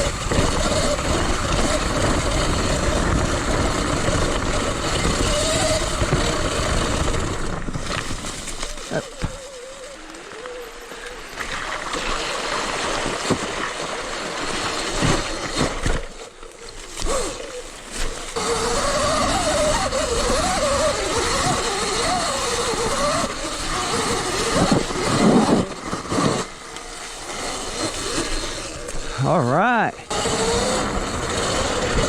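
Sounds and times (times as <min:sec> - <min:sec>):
electric motor whine: 0:00.0 - 0:13.4, 0:14.0 - 0:29.4, 0:30.0 - 0:32.0
wind and trail noise: 0:00.0 - 0:32.0.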